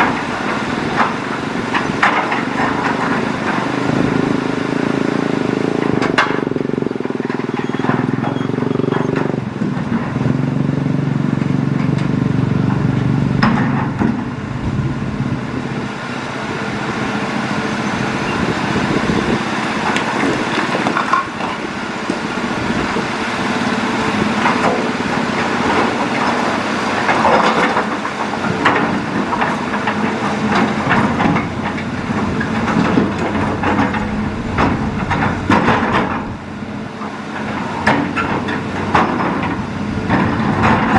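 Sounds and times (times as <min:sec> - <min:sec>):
excavator diesel engine: 0:00.0 - 0:40.9.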